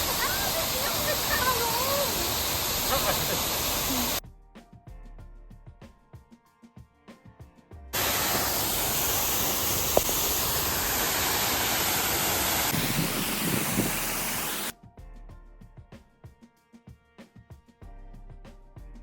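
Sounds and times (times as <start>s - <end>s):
waterfall rushing: 0.0s - 4.2s, 8.0s - 14.7s
quiet background music: 4.2s - 8.0s, 14.7s - 19.0s.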